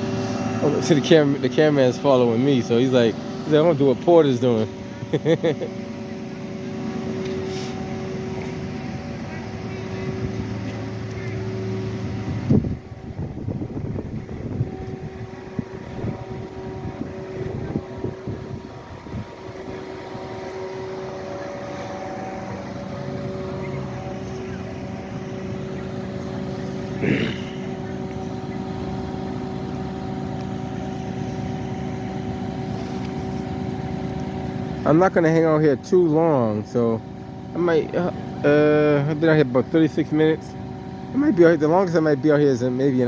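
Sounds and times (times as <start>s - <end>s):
large vehicle engine idling: 0.0s - 43.0s
wind buffeting microphone: 10.0s - 26.6s.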